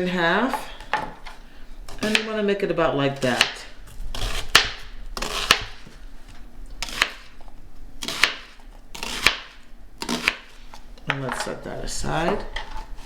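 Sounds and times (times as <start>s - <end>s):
knife slicing vegetable: 3.2s - 5.9s, 6.8s - 10.8s.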